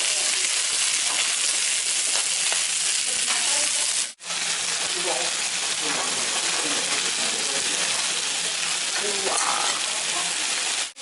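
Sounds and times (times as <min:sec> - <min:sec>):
pork sizzling on a grill: 0:00.0 - 0:11.0.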